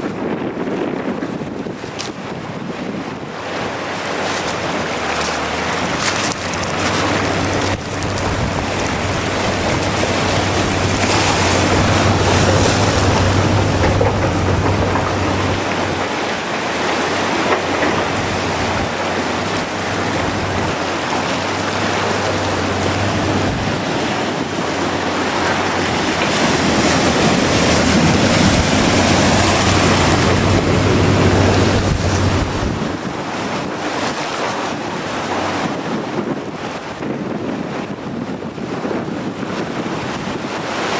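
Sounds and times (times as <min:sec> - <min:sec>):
strong wind buffeting microphone: 0:00.0 - 0:40.9
ocean surf: 0:01.3 - 0:40.9
low steady hum: 0:06.6 - 0:16.0, 0:18.0 - 0:20.8.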